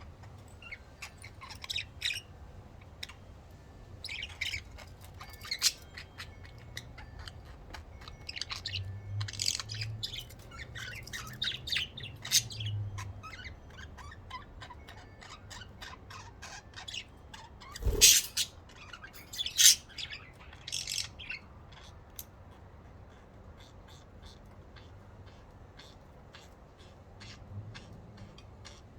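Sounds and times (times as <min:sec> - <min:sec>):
budgerigars chirping: 0:00.0 - 0:28.9.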